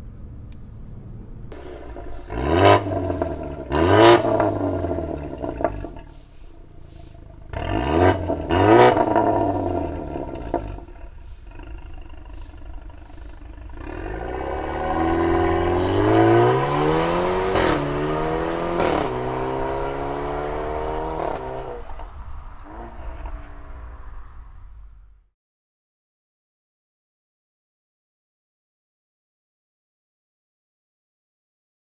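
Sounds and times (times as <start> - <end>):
car engine revving through exhaust: 1.3 - 25.2.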